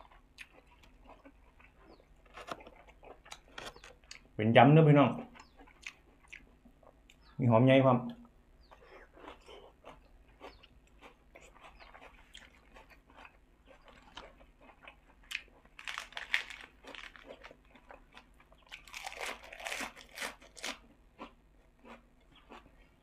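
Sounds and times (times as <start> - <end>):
mouth chewing food: 0.0 - 4.4, 5.1 - 7.4, 8.1 - 23.0
crisp crunching: 8.9 - 22.7.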